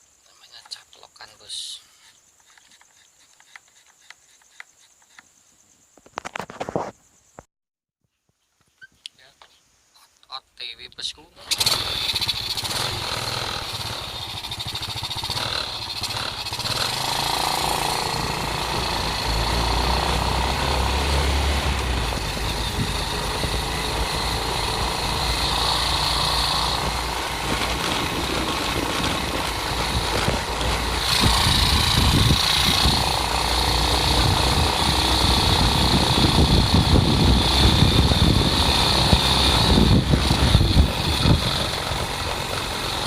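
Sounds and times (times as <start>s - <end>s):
motorcycle engine running: 11.4s - 43.0s.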